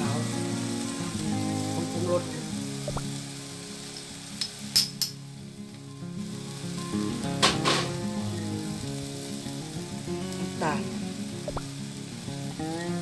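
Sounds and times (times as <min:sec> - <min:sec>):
paste sizzling in a wok: 0:00.0 - 0:13.0
metal spoon clinking: 0:04.4 - 0:05.2.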